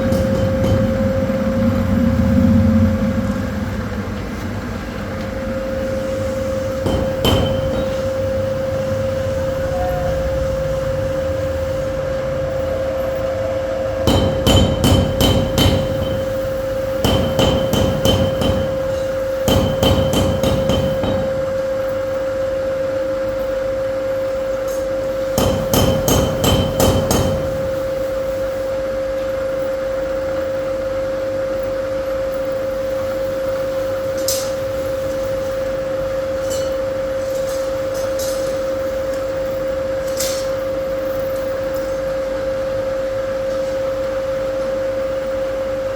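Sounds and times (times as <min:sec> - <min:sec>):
milling machine humming: 0:03.2 - 0:31.2
sharp ringing metal taps: 0:06.8 - 0:08.2, 0:14.1 - 0:21.6.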